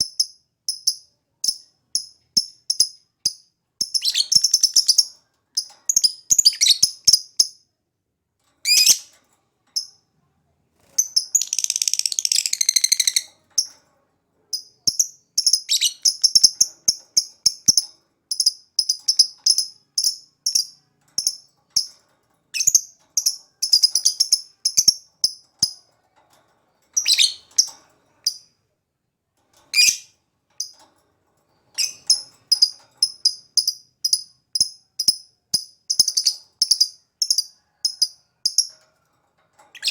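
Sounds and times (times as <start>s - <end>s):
lovebird chirping: 0.0s - 7.6s, 8.6s - 9.1s, 11.0s - 13.3s, 14.6s - 21.9s, 22.5s - 25.8s, 27.0s - 28.4s, 29.7s - 30.7s, 31.8s - 37.5s.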